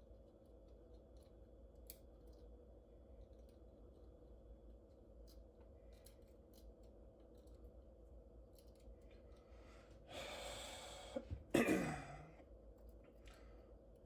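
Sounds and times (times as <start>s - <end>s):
man breathing out hard: 10.1s - 11.4s.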